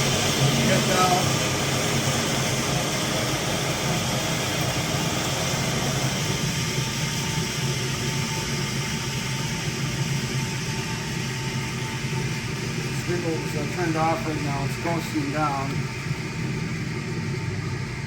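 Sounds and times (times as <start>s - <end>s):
grinder coasting down hum: 0.0s - 8.2s.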